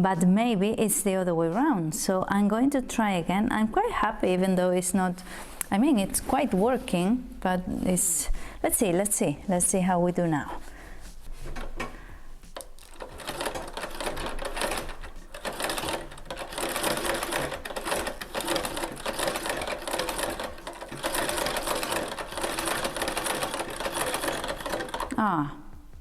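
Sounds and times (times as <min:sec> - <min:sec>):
treadle sewing machine clatter: 0:12.6 - 0:25.2.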